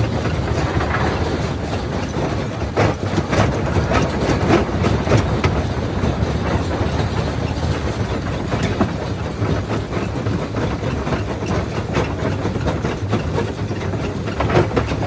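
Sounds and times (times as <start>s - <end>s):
stone cracking and clattering: 0.0s - 2.3s
rock crusher rumbling: 0.0s - 12.4s.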